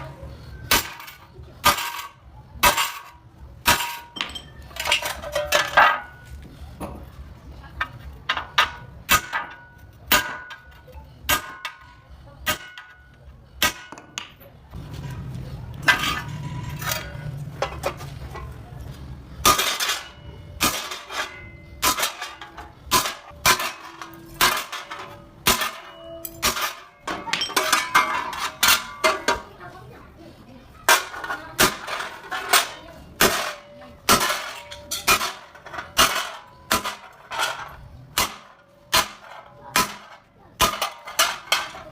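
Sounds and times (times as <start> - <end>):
hammer striking sheet metal: 8.3 - 14.3, 19.4 - 29.5, 30.9 - 41.9.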